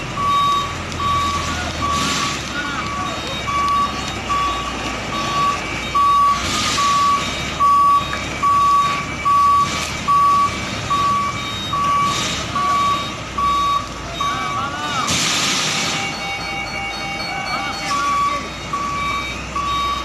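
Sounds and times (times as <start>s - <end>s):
truck engine running: 0.0s - 20.0s
reversing alarm beeping: 0.1s - 20.0s.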